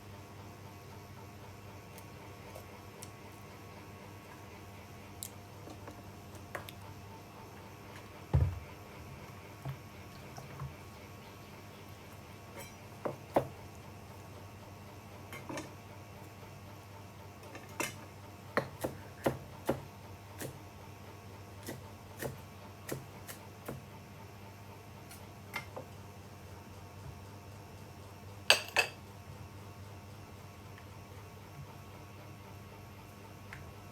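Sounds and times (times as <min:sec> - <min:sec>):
utensils clinking against dishes: 0:12.6 - 0:12.8, 0:28.5 - 0:29.0.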